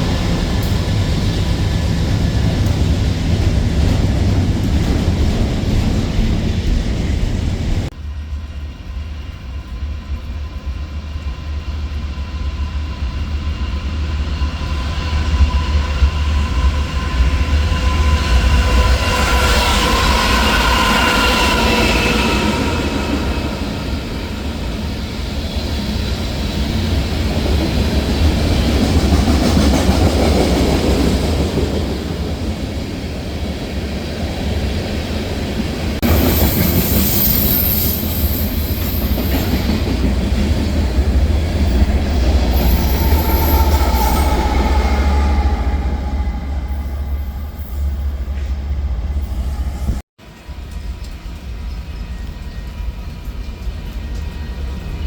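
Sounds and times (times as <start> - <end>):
train rumbling past: 0.0 - 55.0
high-pitched wheel squeals: 36.1 - 39.6, 42.4 - 50.0.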